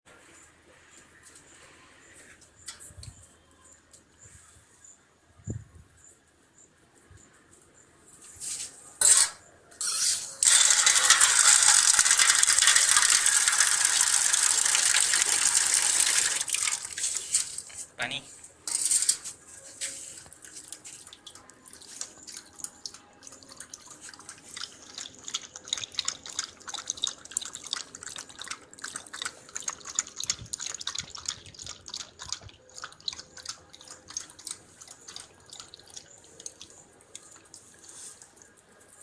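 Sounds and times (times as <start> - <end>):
dog lapping water: 21.0 - 37.6.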